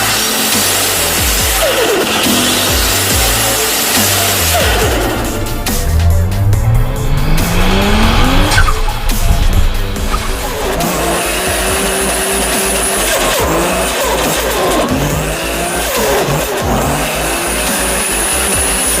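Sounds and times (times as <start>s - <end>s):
background music: 0.0s - 19.0s
car engine revving: 0.0s - 19.0s
cars passing: 2.5s - 16.6s.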